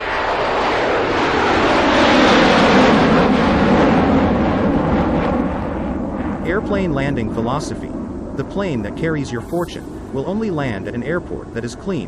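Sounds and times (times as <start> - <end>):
airplane engine passing low: 0.0 - 12.0.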